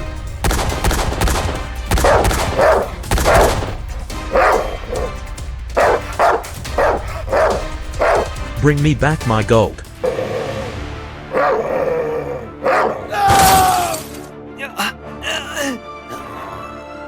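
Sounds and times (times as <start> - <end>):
background music: 0.0 - 17.0
dog barks: 2.0 - 3.5, 4.3 - 5.2, 5.8 - 8.5, 11.3 - 11.9, 12.6 - 13.1.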